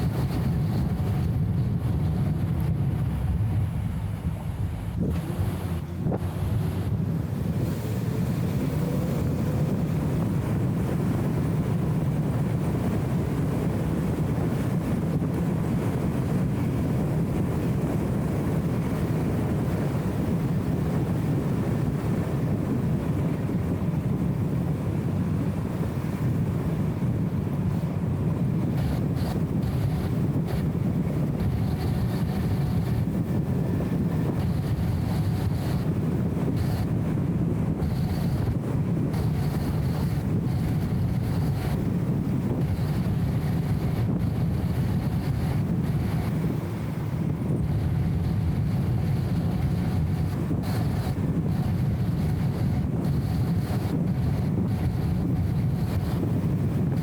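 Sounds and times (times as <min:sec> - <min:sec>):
car engine rumbling: 0:00.0 - 0:57.0
road noise: 0:00.0 - 0:57.0.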